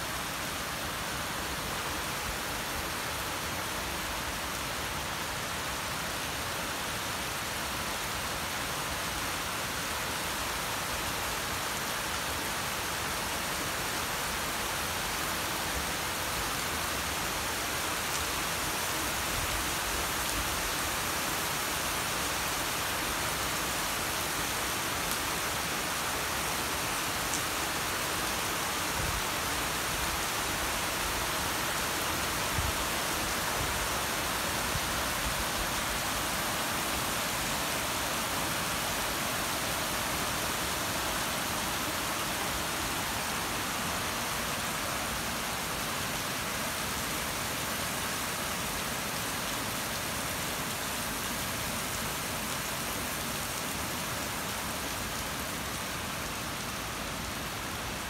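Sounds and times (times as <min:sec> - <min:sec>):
heavy rain on street: 0:00.0 - 0:58.0.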